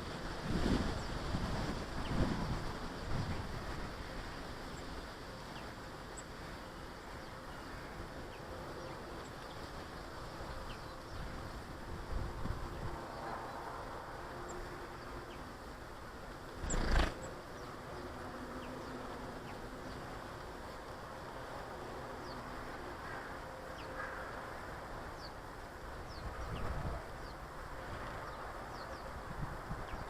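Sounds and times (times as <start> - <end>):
high chirps of small birds: 16.6 - 20.2.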